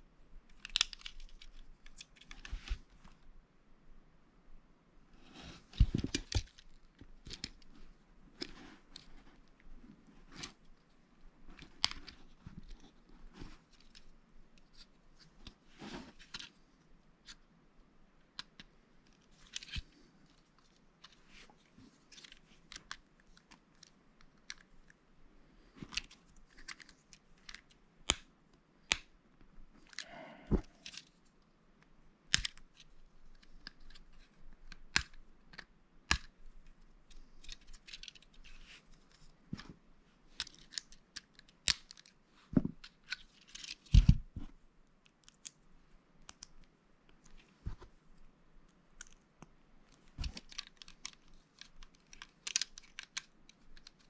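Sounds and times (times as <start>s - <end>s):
rustle of loose plastic pieces: 50.0s - 54.0s
plastic bricks clicking together: 50.3s - 54.0s.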